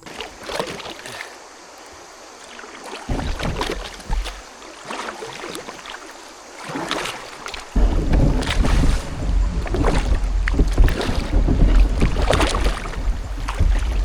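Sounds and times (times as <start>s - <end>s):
kayak paddle splashing: 0.0s - 14.0s
wind buffeting microphone: 7.7s - 14.0s.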